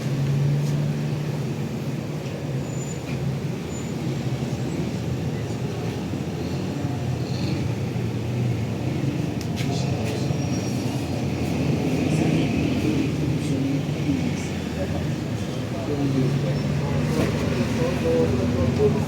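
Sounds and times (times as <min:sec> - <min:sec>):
vehicle engine rumble: 0:00.0 - 0:19.0.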